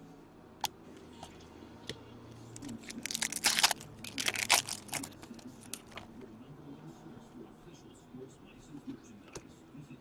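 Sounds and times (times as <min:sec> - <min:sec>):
foil wrapper crinkling and tearing: 0:02.6 - 0:06.0.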